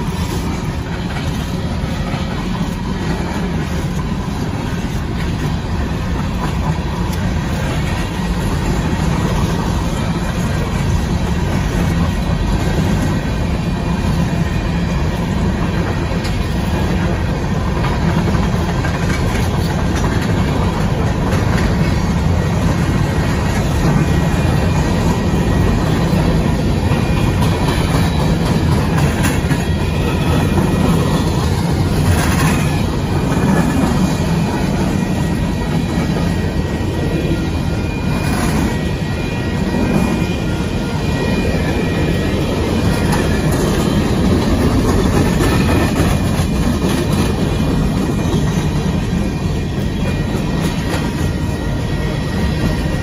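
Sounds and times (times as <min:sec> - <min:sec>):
train wheels clattering on rails: 0:00.0 - 0:53.0
faint high wheel squeal: 0:20.2 - 0:53.0.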